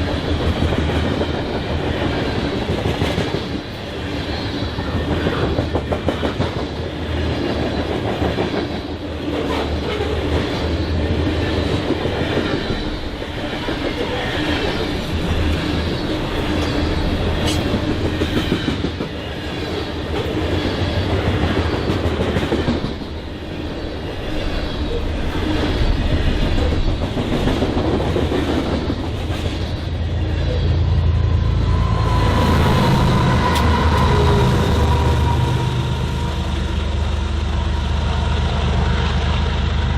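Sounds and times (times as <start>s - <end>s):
train rumble: 0.0s - 39.9s
train wheels clacking over rail joints: 4.9s - 23.2s
steady high tone: 29.9s - 38.7s.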